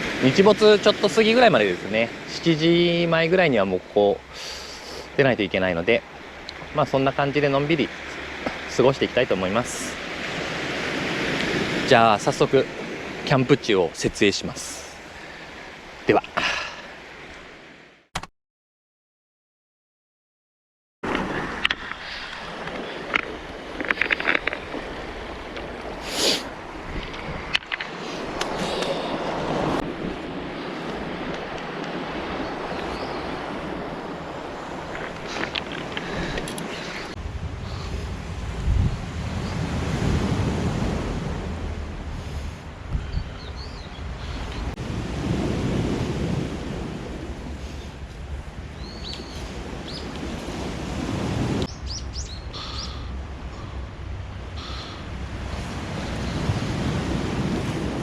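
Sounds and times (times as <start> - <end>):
waves washing onto rocky shore: 0.0 - 17.3, 21.0 - 42.9, 43.5 - 51.7, 52.7 - 58.0
surf on cobble beach: 0.0 - 18.0, 21.0 - 58.0
wind on microphone: 21.1 - 58.0.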